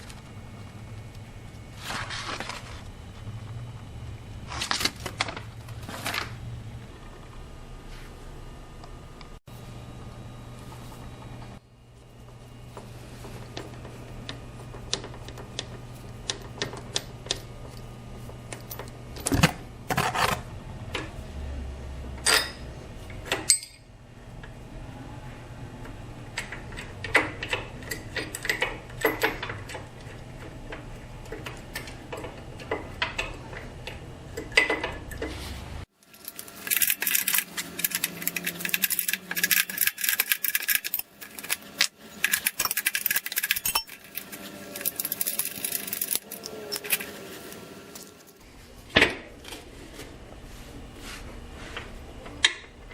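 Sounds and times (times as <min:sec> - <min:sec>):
steady low hum: 0:00.0 - 0:52.9
metal hand tools clinking: 0:36.1 - 0:47.2.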